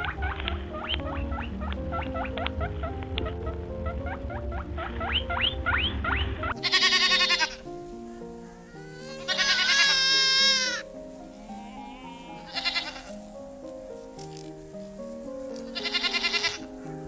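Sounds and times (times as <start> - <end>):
background music: 0.0 - 17.0
goat bleating: 6.6 - 7.7, 8.8 - 13.1, 15.6 - 16.7.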